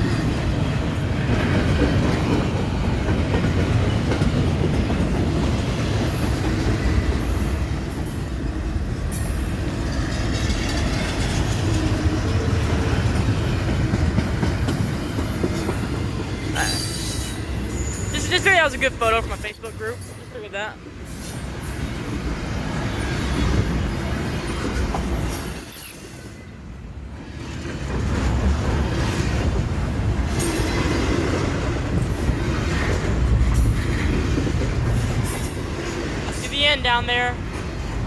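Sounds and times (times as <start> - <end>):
train wheels rumbling on rail: 0.0 - 38.0
high wheel squeals: 16.6 - 20.4.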